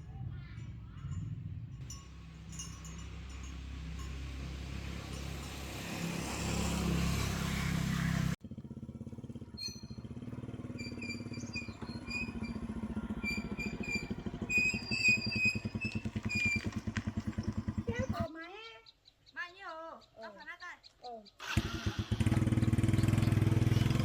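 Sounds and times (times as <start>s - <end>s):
fast low pulsing engine: 0.0s - 18.3s, 21.6s - 24.0s
small engine running: 1.9s - 18.3s, 21.4s - 24.0s.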